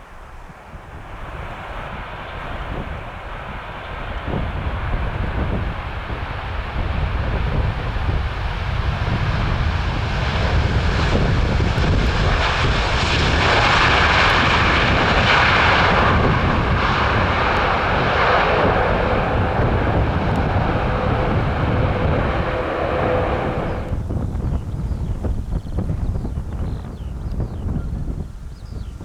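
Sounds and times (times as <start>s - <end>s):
wind on microphone: 0.0s - 29.0s
jet engines whining: 0.9s - 25.6s.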